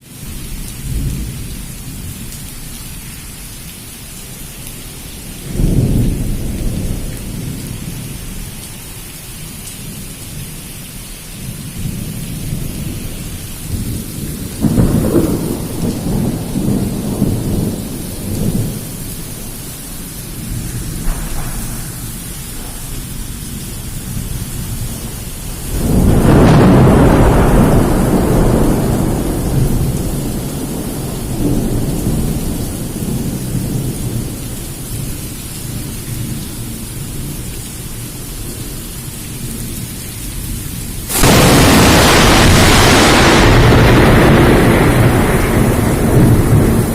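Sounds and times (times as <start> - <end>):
torrential rain hissing: 0.0 - 46.9
thunder rumbling: 5.2 - 8.3, 11.4 - 35.2, 41.1 - 46.9.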